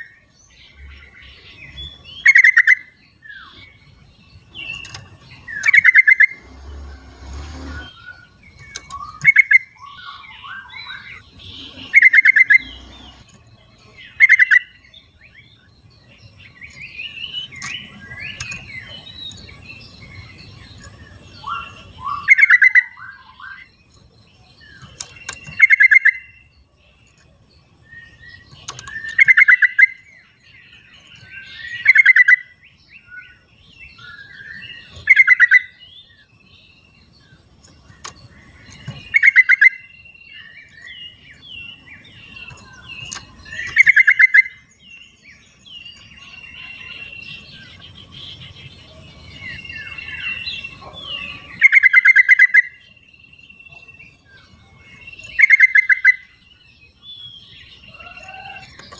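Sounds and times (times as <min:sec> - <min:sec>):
bird chattering calls: 0:04.7 - 0:13.3, 0:21.4 - 0:23.7, 0:34.8 - 0:35.8, 0:38.7 - 0:39.9, 0:42.4 - 0:44.7, 0:49.8 - 0:52.8, 0:55.3 - 0:56.3.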